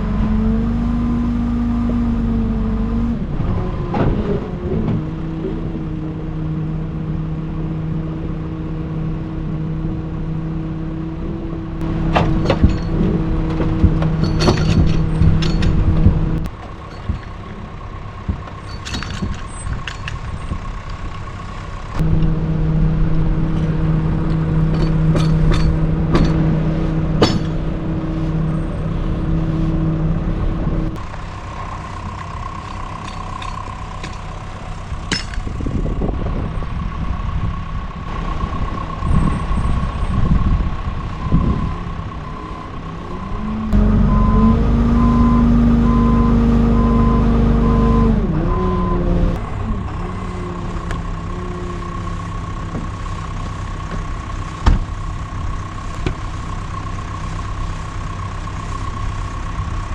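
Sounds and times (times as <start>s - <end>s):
tow truck engine revving: 0.0s - 59.9s
knocks and clanks of rigging: 12.1s - 17.6s, 18.3s - 20.4s, 24.6s - 26.5s, 27.2s - 27.7s
reversing beeper: 42.2s - 49.4s.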